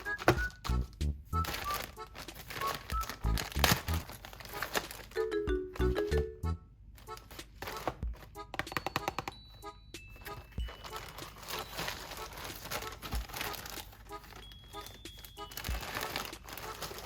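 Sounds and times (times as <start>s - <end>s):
packaging rustling and crinkling: 0.0s - 6.2s, 7.0s - 8.4s, 10.2s - 17.0s
calm piano music: 0.0s - 6.6s, 8.1s - 17.0s
clicks and taps of items handled: 7.3s - 9.4s.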